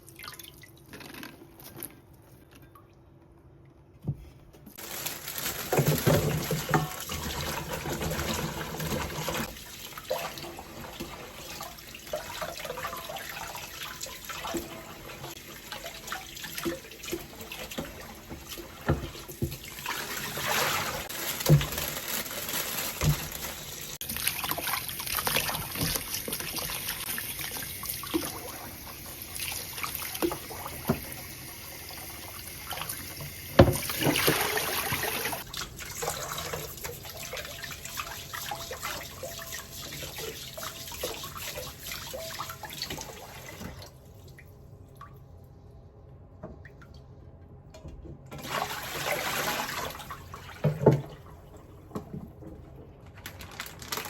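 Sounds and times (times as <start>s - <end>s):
water running from tap into sink: 5.4s - 43.8s.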